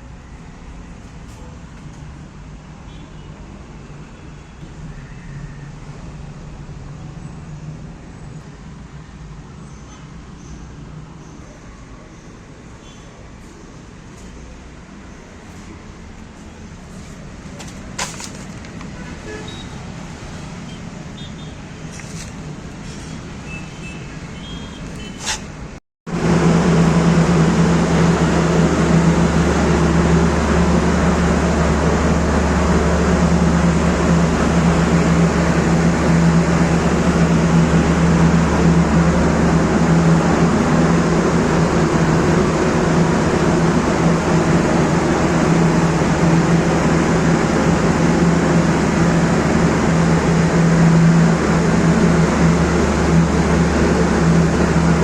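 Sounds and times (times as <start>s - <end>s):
machine drone: 26.1s - 55.0s.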